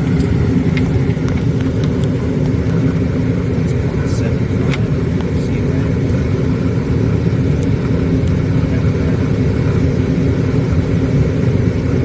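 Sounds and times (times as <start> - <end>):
gas furnace rumbling: 0.0 - 12.0.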